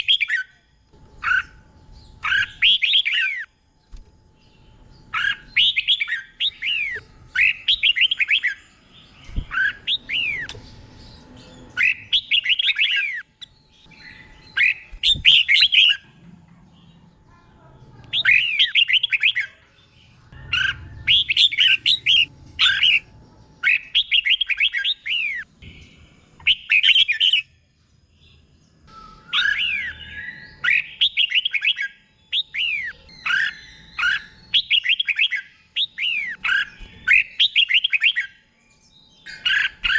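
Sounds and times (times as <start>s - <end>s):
bird singing whistled phrases: 11.8s - 13.3s, 13.9s - 16.0s, 18.1s - 19.6s, 20.5s - 25.5s, 26.4s - 27.5s, 28.9s - 38.4s.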